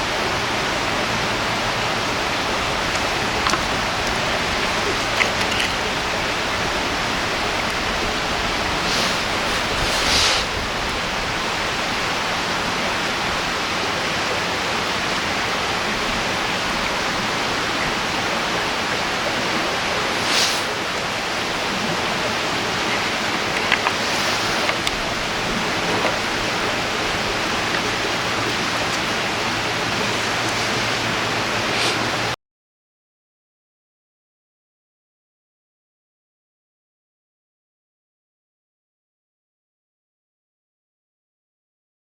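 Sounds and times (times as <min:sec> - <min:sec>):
river water rushing: 0:00.0 - 0:32.4.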